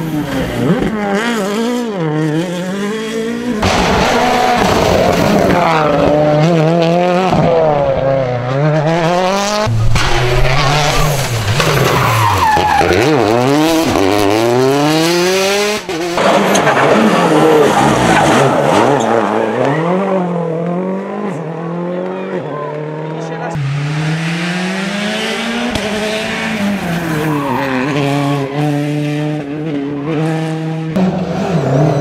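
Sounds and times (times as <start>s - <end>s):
rally car engines revving: 0.0s - 32.0s
tyres skidding on road: 3.6s - 7.6s, 8.3s - 20.1s.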